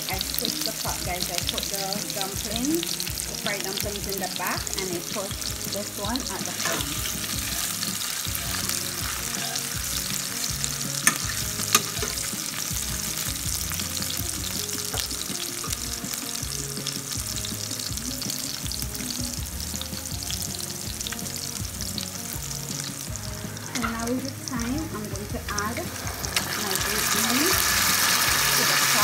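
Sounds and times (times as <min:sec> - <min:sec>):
food sizzling in hot oil: 0:00.0 - 0:29.0
metal fork stirring: 0:06.5 - 0:09.7, 0:11.0 - 0:12.3.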